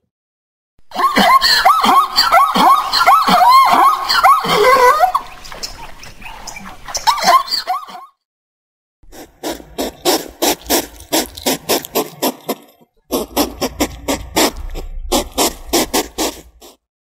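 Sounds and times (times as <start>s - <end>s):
hedgehog huffing: 9.1s - 16.8s.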